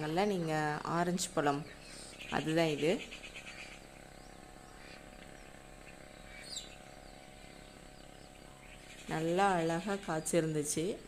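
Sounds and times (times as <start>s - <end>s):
garden ambience: 0.0s - 11.0s.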